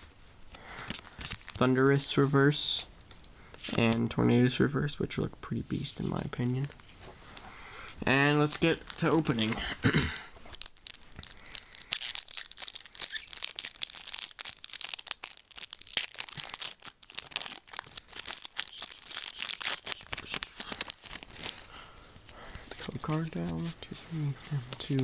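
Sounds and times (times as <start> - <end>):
foil wrapper tearing and crinkling: 0.8 - 1.6, 8.4 - 9.6, 10.4 - 23.7.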